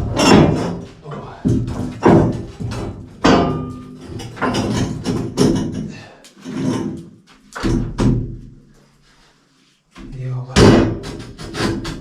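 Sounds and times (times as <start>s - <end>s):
wooden boards knocking: 0.0s - 5.9s.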